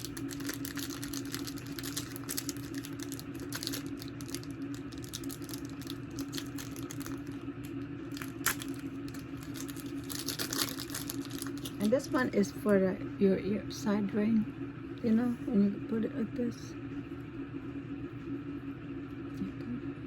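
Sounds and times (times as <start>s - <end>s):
packaging crinkling and rustling: 0.0s - 12.0s
steady low hum: 0.0s - 20.0s.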